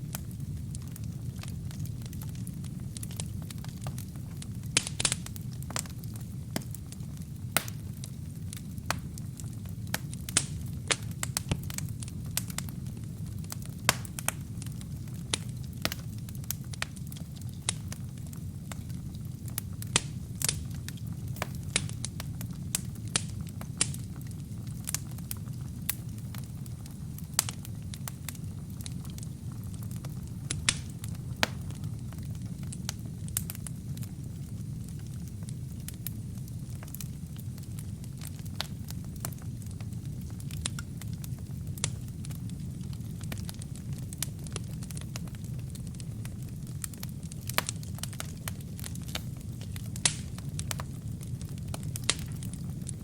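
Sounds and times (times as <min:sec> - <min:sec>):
fire flames rumbling: 0:00.0 - 0:53.0
logs crackling and popping: 0:00.0 - 0:53.0.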